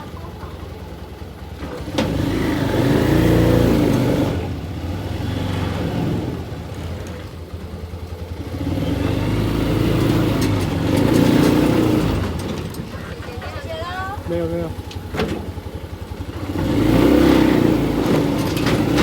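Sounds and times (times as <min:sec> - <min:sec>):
vehicle engine accelerating: 0:00.0 - 0:13.3, 0:14.3 - 0:19.0.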